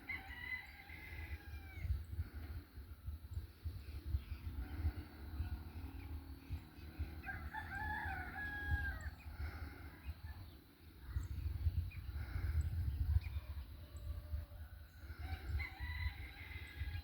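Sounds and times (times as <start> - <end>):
rooster crowing: 0.0 - 1.9, 7.2 - 9.2, 15.2 - 17.0.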